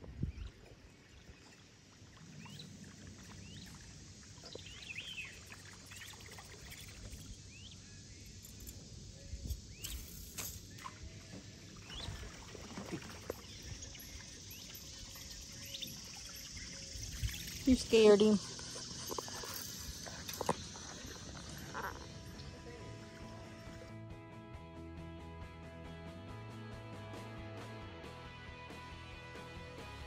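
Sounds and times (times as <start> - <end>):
small birds chirping: 0.1 - 23.8.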